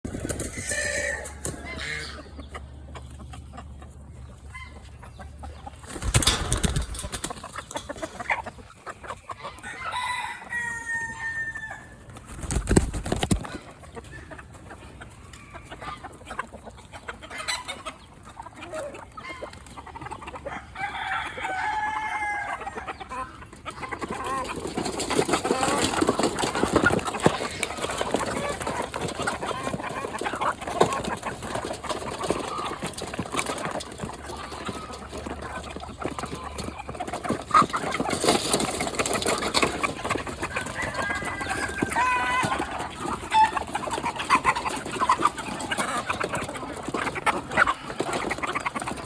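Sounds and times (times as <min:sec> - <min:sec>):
chickens clucking: 0:00.0 - 0:49.0
drawn-out chicken calls: 0:00.1 - 0:49.0.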